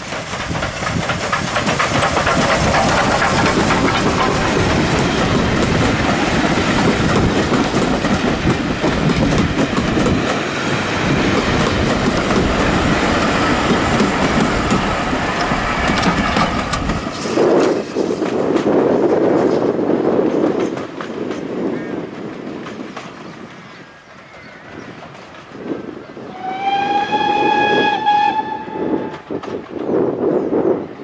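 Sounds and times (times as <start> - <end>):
train wheels rumbling and clattering: 0.0 - 31.0.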